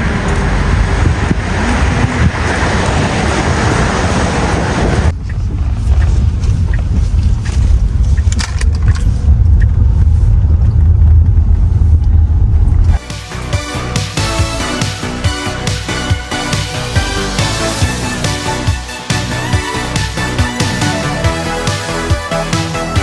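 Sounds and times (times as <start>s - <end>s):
loud low rumble: 0.0s - 22.2s
music: 13.0s - 23.0s.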